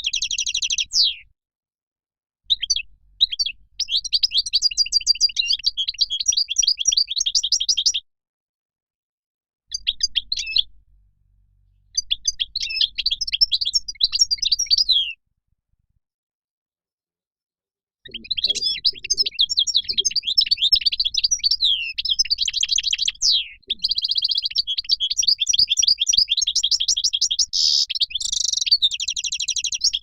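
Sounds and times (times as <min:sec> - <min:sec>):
goldfinch twittering song: 0:00.0 - 0:01.2, 0:02.5 - 0:08.0, 0:09.7 - 0:10.7, 0:11.9 - 0:15.2, 0:18.1 - 0:30.0.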